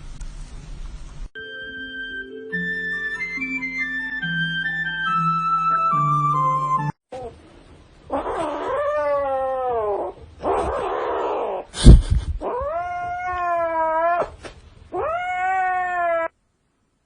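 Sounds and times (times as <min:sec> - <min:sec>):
cat yowling: 0:08.1 - 0:11.7, 0:12.4 - 0:16.4.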